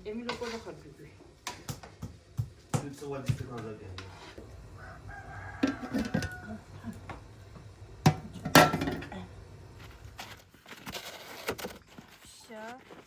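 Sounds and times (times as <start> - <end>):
rooster crowing: 4.7 - 7.0.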